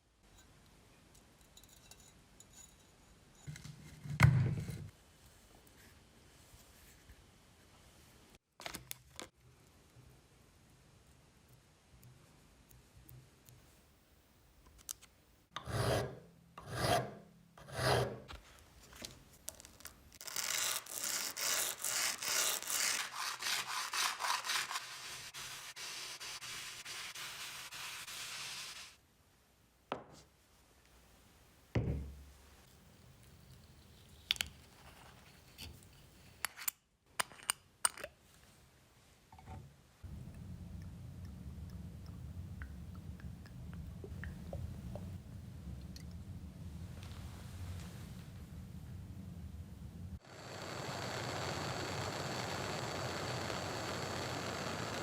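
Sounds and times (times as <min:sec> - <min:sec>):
rasping strokes on workpiece: 0:15.6 - 0:18.3, 0:20.4 - 0:28.9
low hum: 0:40.1 - 0:55.0.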